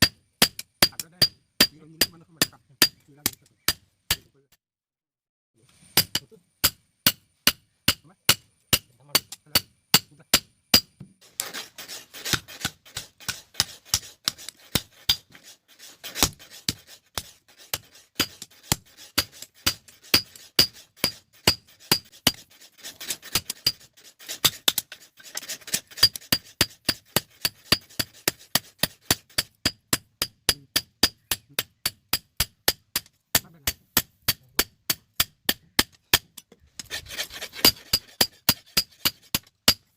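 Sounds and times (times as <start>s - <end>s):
rough rasping noise: 11.2s - 39.8s.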